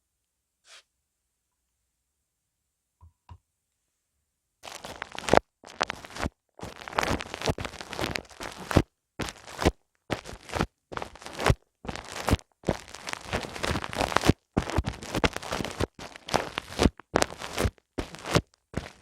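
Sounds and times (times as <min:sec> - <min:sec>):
rubbing and scratching on microphone: 0:04.6 - 0:19.0.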